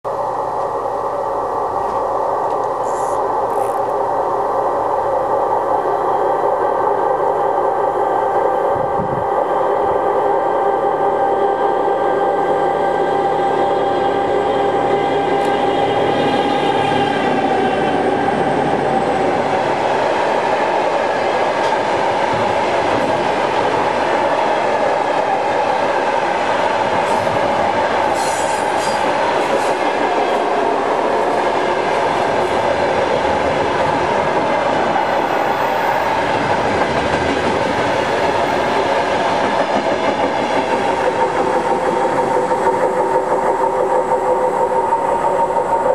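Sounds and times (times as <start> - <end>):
diesel locomotive engine: 0.1 - 45.9
train wheels clattering over rails: 15.2 - 45.9.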